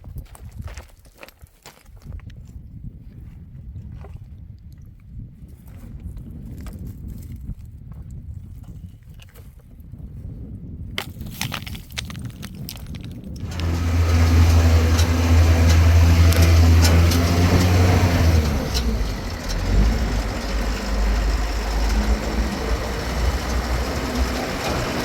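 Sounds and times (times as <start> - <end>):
engine humming: 13.4 - 25.0.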